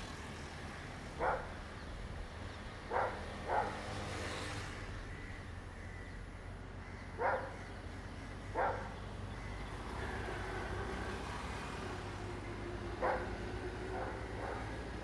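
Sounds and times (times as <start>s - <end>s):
dog barking: 1.2s - 1.5s, 2.9s - 3.8s, 7.2s - 7.6s, 8.6s - 8.9s, 13.0s - 14.8s.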